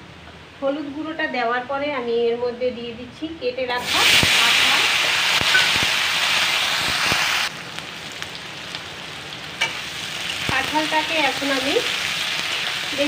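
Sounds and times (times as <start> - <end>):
food sizzling in hot oil: 3.7 - 13.0.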